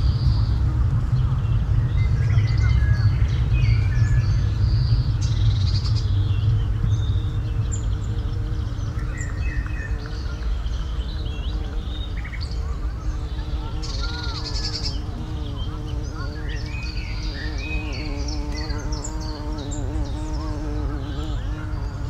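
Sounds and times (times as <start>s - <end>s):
steady low rumble: 0.0s - 13.7s
small birds chirping: 0.0s - 22.0s.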